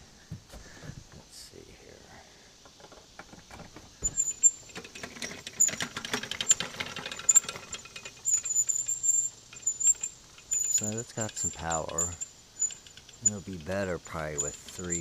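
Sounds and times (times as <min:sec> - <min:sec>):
motor clicking rattling and squealing: 0:04.0 - 0:15.0.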